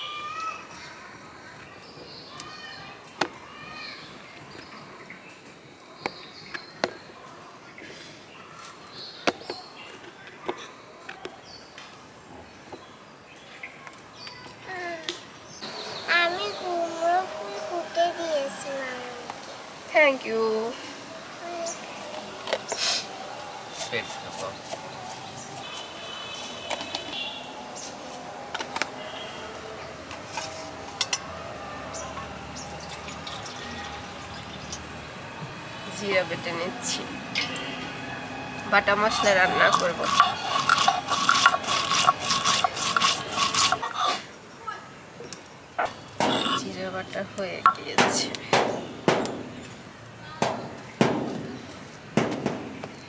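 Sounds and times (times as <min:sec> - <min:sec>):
birds chirping: 0:15.3 - 0:53.0.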